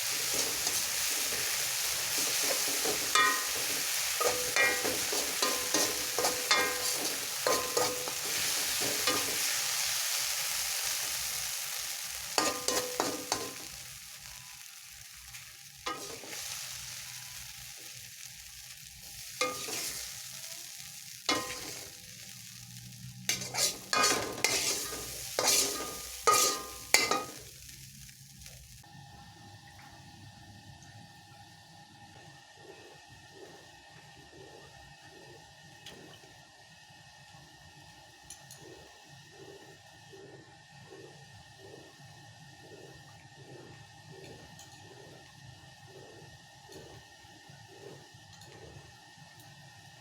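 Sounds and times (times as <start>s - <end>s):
food sizzling in pan: 0.0s - 28.9s
utensil scraping and knocking pan: 2.1s - 9.4s, 19.4s - 20.0s, 23.3s - 27.4s.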